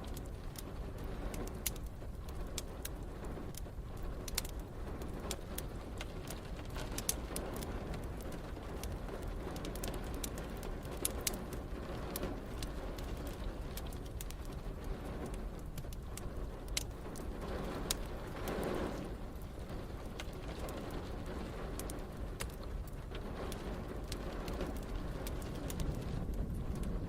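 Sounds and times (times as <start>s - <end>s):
low rumbling background: 0.0s - 27.0s
sharp pops of fire: 0.0s - 27.0s
wood fire crackling: 0.0s - 27.0s.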